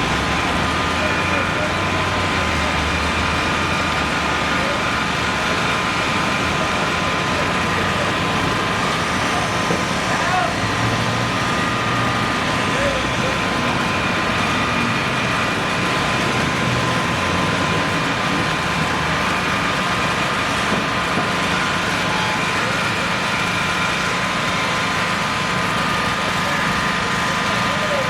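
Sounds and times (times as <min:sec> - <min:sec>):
engine idling: 0:00.0 - 0:28.0.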